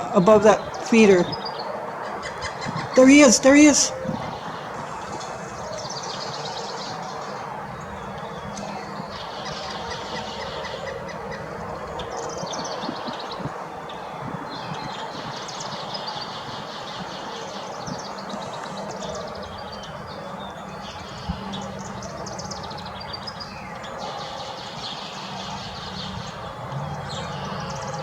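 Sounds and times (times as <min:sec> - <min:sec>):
outdoor background noise: 0:00.0 - 0:28.0
songbirds chirping and trilling: 0:00.0 - 0:28.0.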